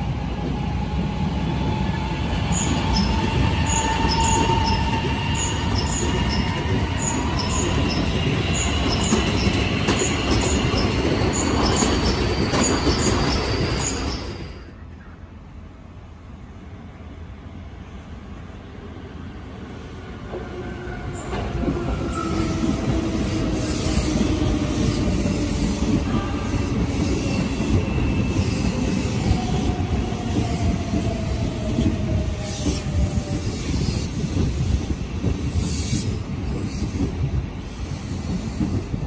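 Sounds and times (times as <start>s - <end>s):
electric train arriving: 0.0s - 39.0s
train wheels squealing: 1.3s - 14.8s, 20.8s - 34.8s.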